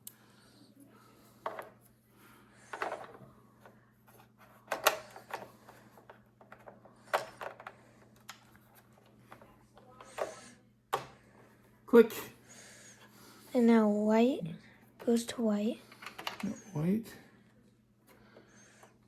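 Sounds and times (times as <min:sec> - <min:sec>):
faint steady hum: 0:00.0 - 0:19.0
plastic parts clicking and rustling: 0:02.6 - 0:03.2, 0:04.1 - 0:11.1, 0:15.9 - 0:16.6.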